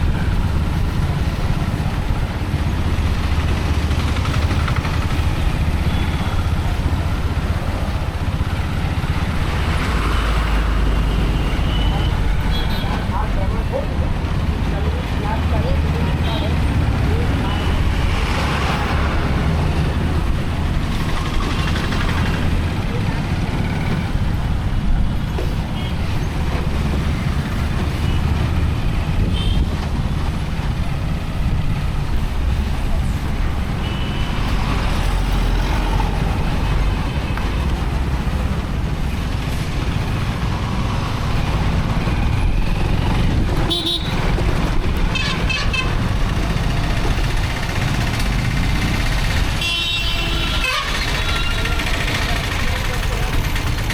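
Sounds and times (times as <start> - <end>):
vehicle horn honking: 43.7 - 44.2, 49.6 - 52.0.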